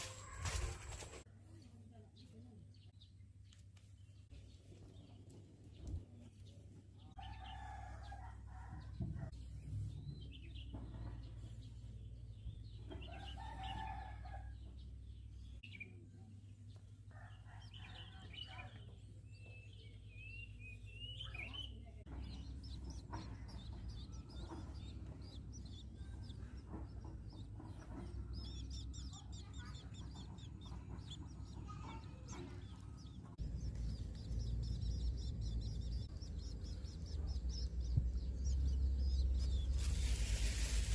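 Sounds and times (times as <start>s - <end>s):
birds calling: 19.5s - 40.9s
steady low rumble: 32.5s - 40.9s.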